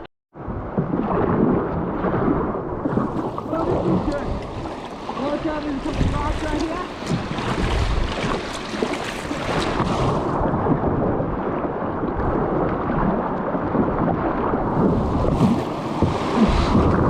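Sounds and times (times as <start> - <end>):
wind buffeting microphone: 0.4 - 17.0
river water rushing and splashing: 2.9 - 11.0, 14.2 - 17.0.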